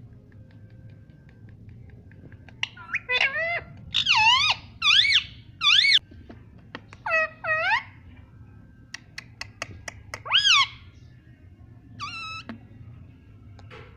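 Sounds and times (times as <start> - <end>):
parrot calling: 2.6 - 6.0, 7.0 - 8.0, 10.2 - 10.9, 12.0 - 12.5.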